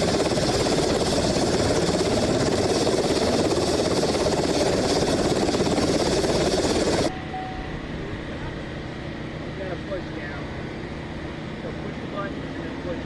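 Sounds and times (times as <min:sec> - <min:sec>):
helicopter engine and rotor: 0:00.0 - 0:13.0.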